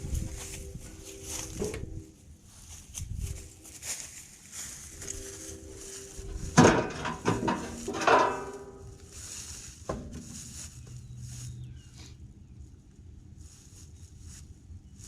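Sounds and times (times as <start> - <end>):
sheet metal clanking: 6.3 - 9.0.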